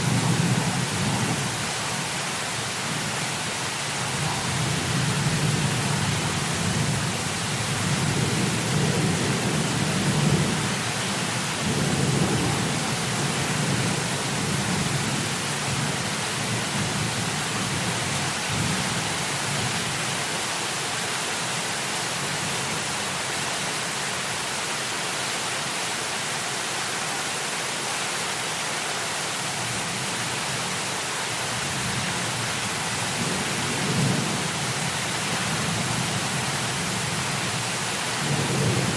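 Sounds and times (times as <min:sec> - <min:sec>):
heavy rain hissing: 0:00.0 - 0:38.9
low thunder rumbling: 0:38.2 - 0:38.9.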